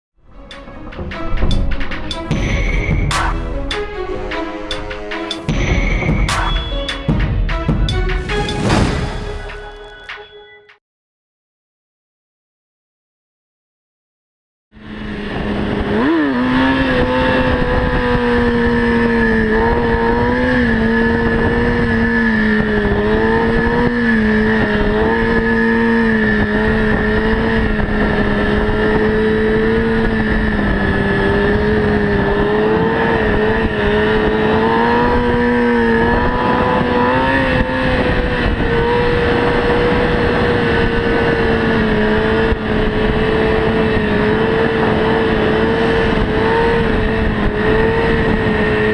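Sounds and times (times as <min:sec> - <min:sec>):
wind and road noise: 0:00.2 - 0:09.9, 0:14.8 - 0:48.9
motorcycle engine revving: 0:14.8 - 0:48.9.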